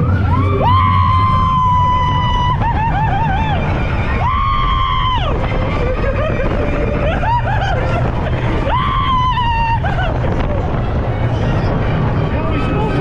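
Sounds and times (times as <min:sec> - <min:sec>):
roller coaster rumble: 0:00.0 - 0:13.0
riders screaming: 0:00.3 - 0:05.4, 0:08.5 - 0:10.3.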